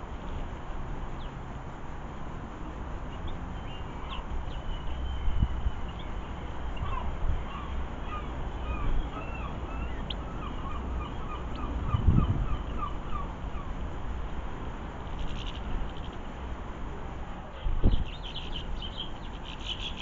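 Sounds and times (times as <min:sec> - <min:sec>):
wind noise on microphone: 0:00.0 - 0:16.0, 0:16.9 - 0:20.0
bird calling rising notes: 0:03.6 - 0:13.7.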